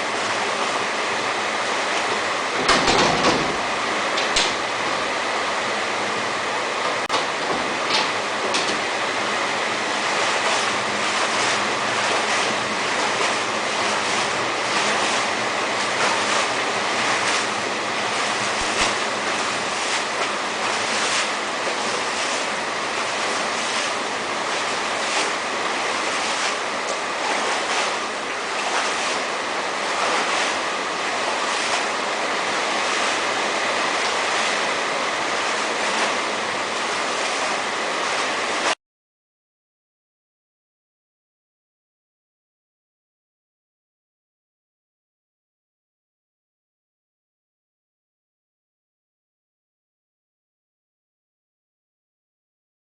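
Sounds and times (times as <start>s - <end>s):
heavy rain pouring: 0.0s - 38.8s.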